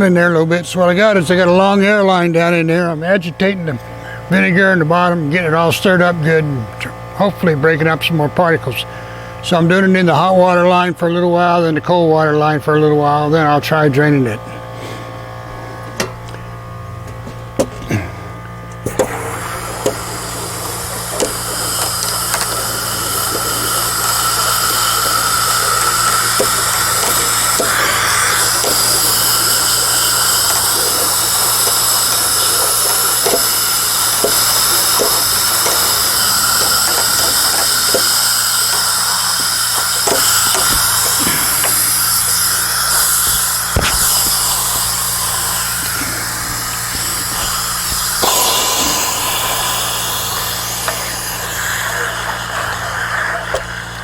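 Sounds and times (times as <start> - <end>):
steady low hum: 0.0 - 54.0
compressed air hissing: 14.4 - 54.0
liquid bubbling and sloshing: 14.6 - 54.0
small pops and clicks: 18.7 - 45.3.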